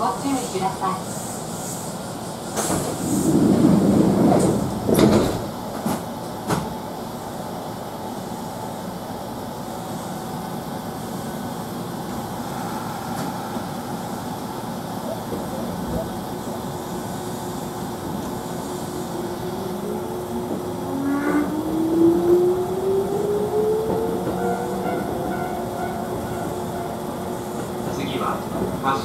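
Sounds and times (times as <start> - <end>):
train running noise: 0.0 - 29.0
train doors closing: 1.8 - 6.9, 12.2 - 29.0.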